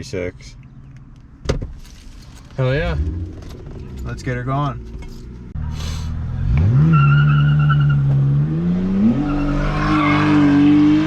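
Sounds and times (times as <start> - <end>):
car engine revving: 2.6 - 11.0.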